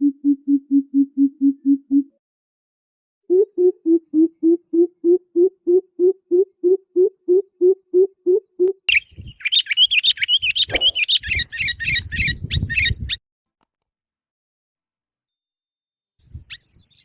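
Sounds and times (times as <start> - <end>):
bird chirping rapidly: 8.9 - 13.2.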